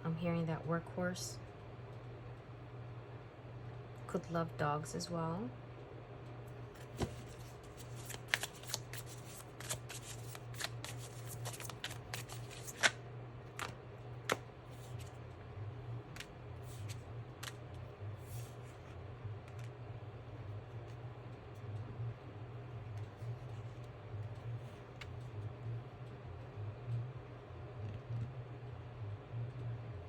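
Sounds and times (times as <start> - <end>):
low steady hum: 0.0 - 30.0
cards being shuffled: 6.8 - 15.1, 16.2 - 17.6.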